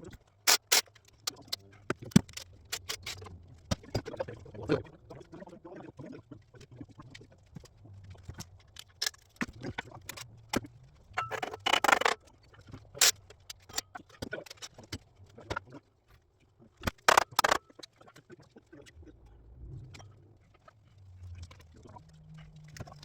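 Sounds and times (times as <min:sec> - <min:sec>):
metal tools clinking: 0:11.2 - 0:12.2.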